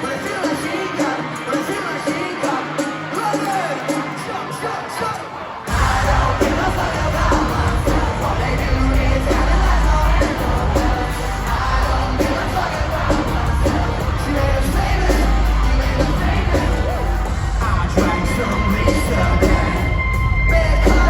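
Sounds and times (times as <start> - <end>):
crowd shouting: 0.0 - 21.0
person singing: 0.0 - 21.0
live rock band playing: 5.7 - 21.0.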